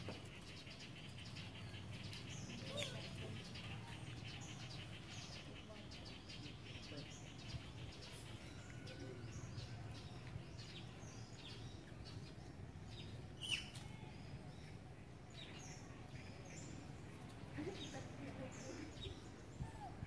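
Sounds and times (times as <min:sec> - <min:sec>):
birds chirping: 0:00.0 - 0:20.0
faint low background noise: 0:00.0 - 0:20.0.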